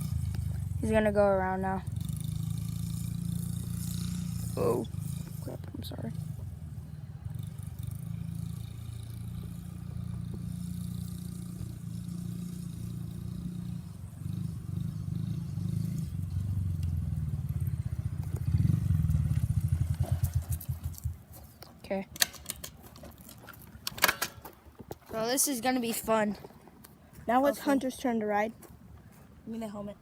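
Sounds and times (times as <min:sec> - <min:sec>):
mini dirt bike engine: 0:00.0 - 0:21.3.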